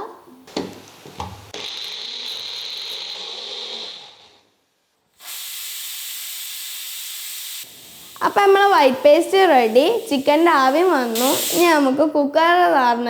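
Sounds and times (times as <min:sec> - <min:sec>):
mixer grinder running: 0:01.5 - 0:04.4
steady hiss: 0:05.2 - 0:12.0.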